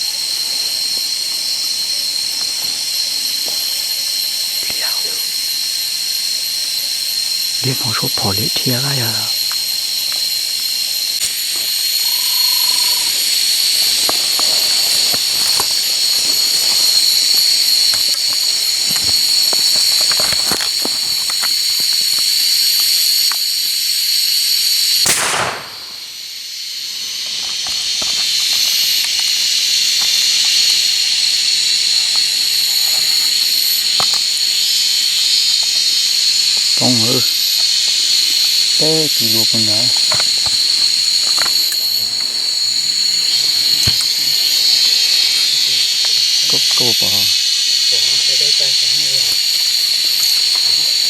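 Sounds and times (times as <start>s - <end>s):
insects buzzing: 0.0s - 51.0s
loud bang: 25.1s - 26.2s.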